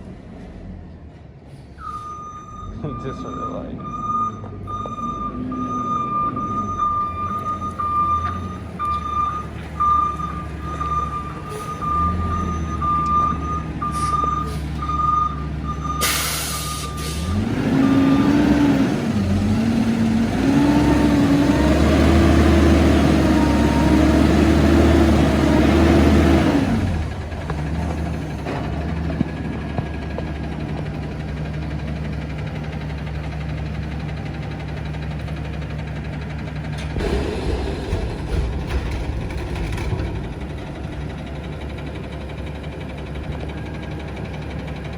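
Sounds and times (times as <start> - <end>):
reverse alarm beeping: 1.8 - 18.5
truck engine revving: 2.6 - 44.9
air brake hiss: 16.0 - 17.3.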